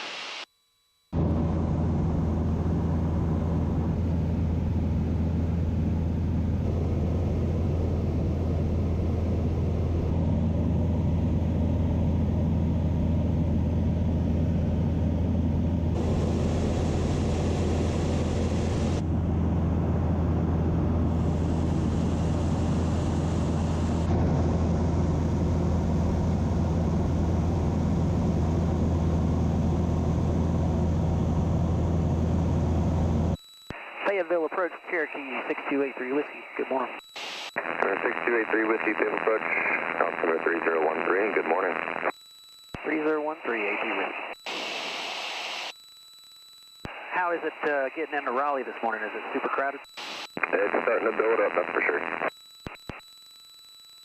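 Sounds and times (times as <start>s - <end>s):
aircraft engine and propeller droning: 1.2s - 33.4s.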